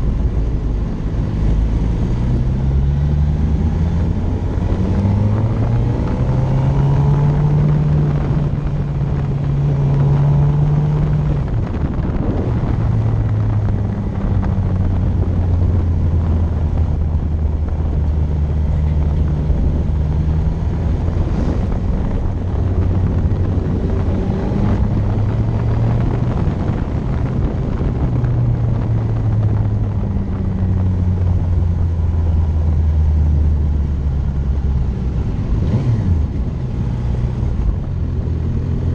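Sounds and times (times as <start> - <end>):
motorcycle engine humming: 0.0 - 38.9
wind noise: 0.0 - 38.9.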